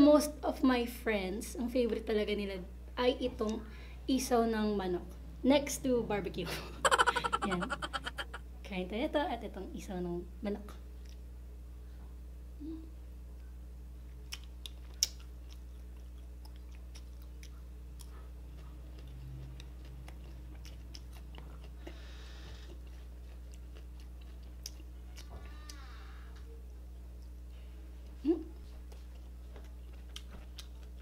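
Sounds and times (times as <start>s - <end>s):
steady low hum: 2.6s - 31.0s
wet mouth clicks: 14.3s - 15.6s
person chewing food: 14.3s - 25.8s, 28.8s - 31.0s.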